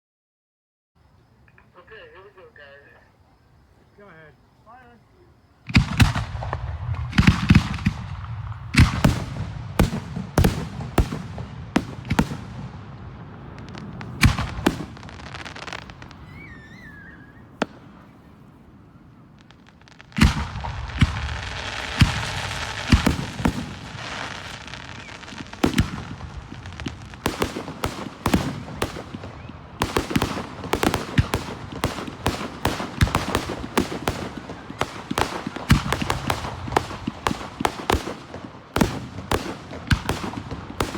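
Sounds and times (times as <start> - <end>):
fireworks crackling: 3.8 - 40.9
fireworks bangs and booms: 3.9 - 40.9
warbling firework whistle: 13.3 - 26.0.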